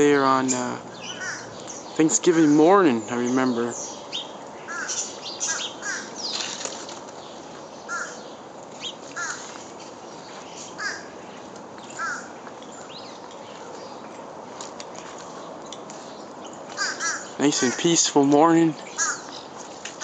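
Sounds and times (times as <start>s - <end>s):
steady outdoor hiss: 0.0s - 20.0s
crows cawing: 0.9s - 1.6s, 4.6s - 6.4s, 7.8s - 8.3s, 9.1s - 9.6s, 10.7s - 11.2s, 11.9s - 12.4s, 16.7s - 18.0s, 18.9s - 20.0s.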